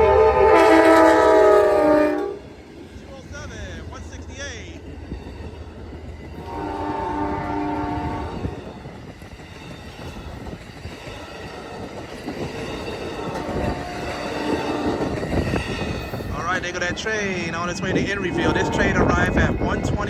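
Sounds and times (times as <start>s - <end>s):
locomotive horn chord: 0.0s - 2.5s, 6.4s - 8.6s, 13.2s - 15.2s
train cars rumbling on rails: 0.0s - 20.0s.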